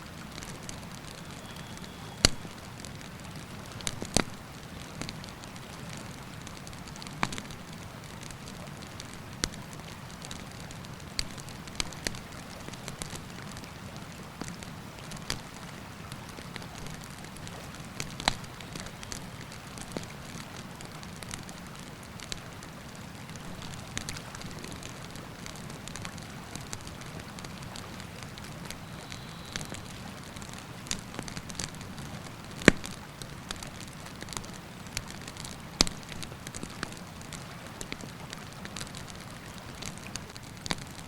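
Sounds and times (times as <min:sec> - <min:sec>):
river rushing: 0:00.0 - 0:06.9
campfire crackling and popping: 0:00.1 - 0:41.0.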